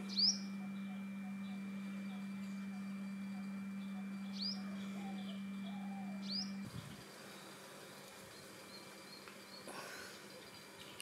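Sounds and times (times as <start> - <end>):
birds chirping: 0.0 - 11.0
low steady hum: 0.0 - 11.0
wavering bird calls: 0.0 - 11.0.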